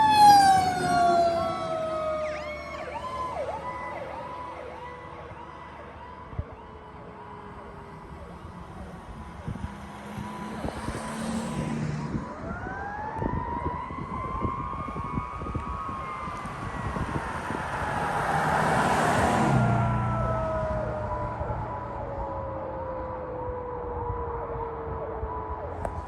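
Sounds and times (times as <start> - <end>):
electronic siren sweeping: 0.0 - 5.0, 10.0 - 25.8.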